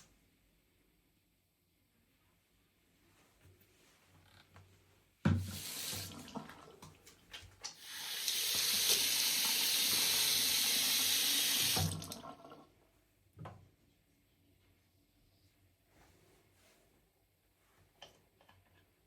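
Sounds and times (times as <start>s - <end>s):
tap running into a sink: 5.3s - 10.3s.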